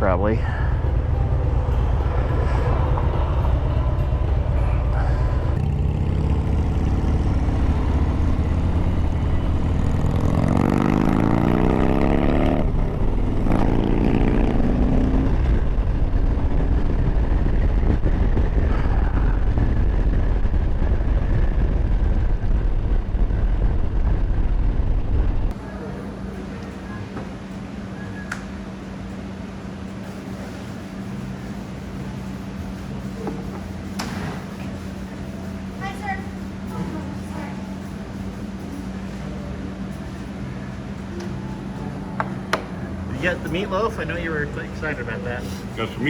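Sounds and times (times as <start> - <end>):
motorcycle engine revving: 0.0 - 25.5
wind noise: 14.4 - 25.6.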